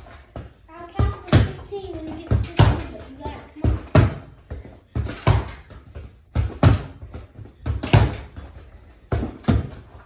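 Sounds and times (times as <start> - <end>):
ball kicked against a wall: 3.6 - 9.9.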